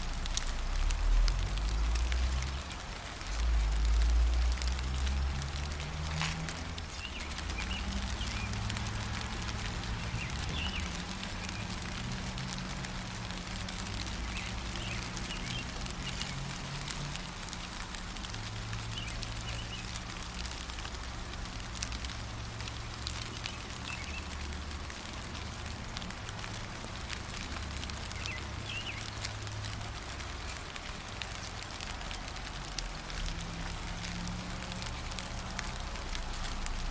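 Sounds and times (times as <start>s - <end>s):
gentle rain patter: 0.0s - 36.9s
small birds chirping: 1.2s - 20.8s, 21.4s - 25.1s, 27.0s - 32.4s.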